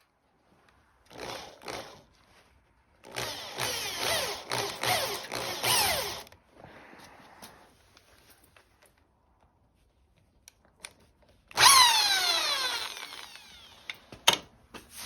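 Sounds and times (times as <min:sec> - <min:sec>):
tool working material: 0:11.6 - 0:14.0.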